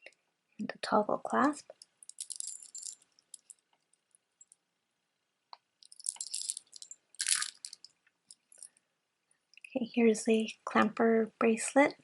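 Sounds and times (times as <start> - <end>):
jewelry clinking and rattling: 1.7 - 4.6, 5.8 - 8.8.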